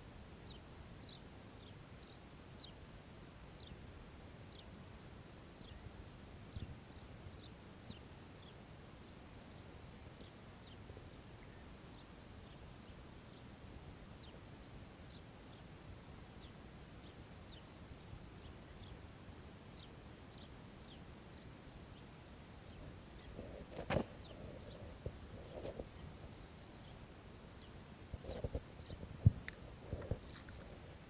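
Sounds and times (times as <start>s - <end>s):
small bird chirping: 14.2s - 30.9s.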